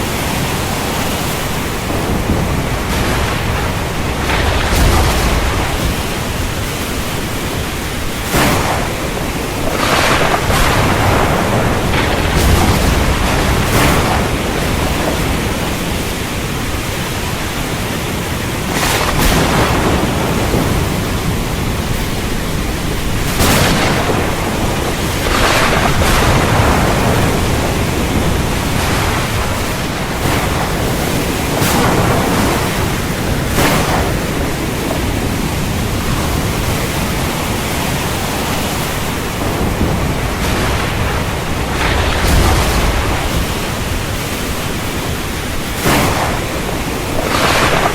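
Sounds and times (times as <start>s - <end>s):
heavy rain falling: 0.0s - 47.9s
thunder rumbling: 0.0s - 47.9s.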